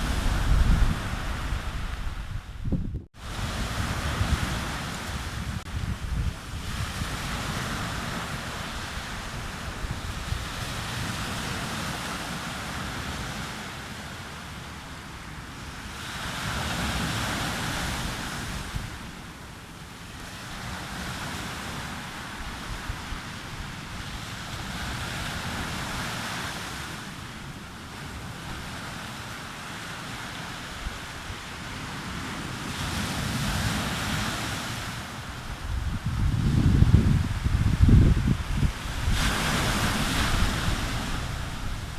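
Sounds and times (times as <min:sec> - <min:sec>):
sea waves breaking on beach: 0:00.0 - 0:02.6, 0:03.2 - 0:41.9
wind buffeting microphone: 0:00.0 - 0:11.9, 0:35.3 - 0:41.9.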